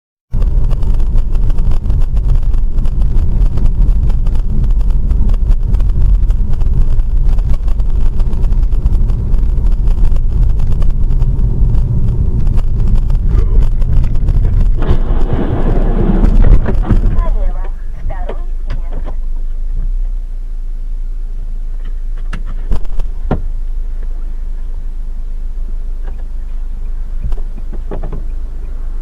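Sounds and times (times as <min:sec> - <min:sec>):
tyre noise: 0:00.3 - 0:20.1
car engine and road rumble: 0:00.3 - 0:29.0.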